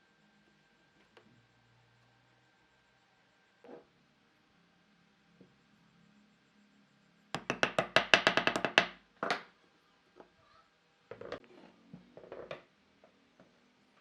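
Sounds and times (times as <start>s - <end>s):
rapid sharp knocks: 7.4s - 9.0s.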